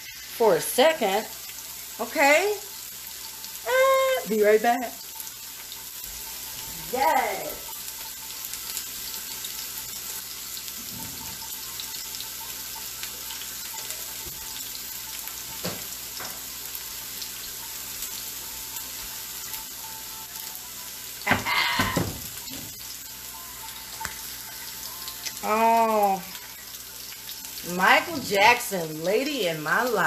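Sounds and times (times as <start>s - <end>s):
food sizzling on a griddle: 0.0s - 30.0s.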